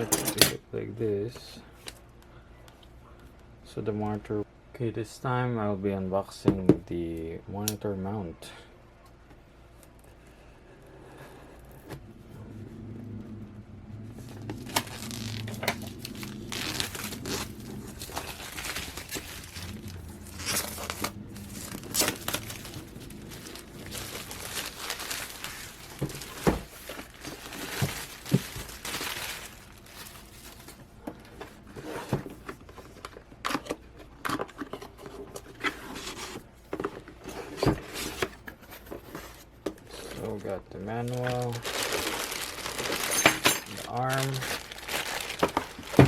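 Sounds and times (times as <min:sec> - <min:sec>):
cardboard box being opened: 0:14.1 - 0:30.8, 0:41.1 - 0:46.0
plastic wrapping crinkling and tearing: 0:14.2 - 0:31.6, 0:39.8 - 0:46.0.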